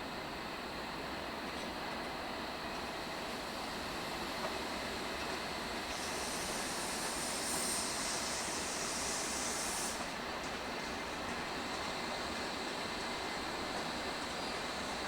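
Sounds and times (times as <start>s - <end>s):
train running along track: 0.0s - 15.0s
high hiss: 5.7s - 10.3s.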